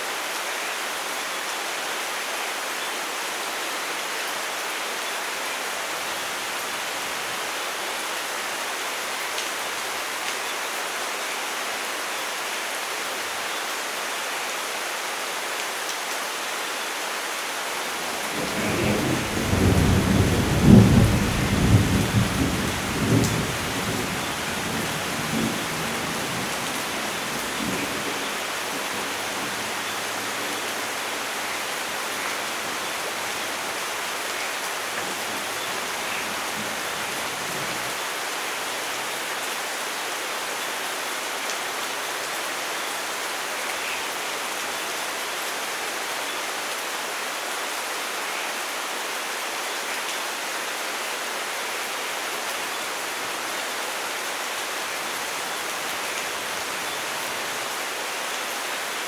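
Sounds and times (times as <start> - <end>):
steady rain: 0.0 - 59.0
thunder rumbling: 18.1 - 33.7.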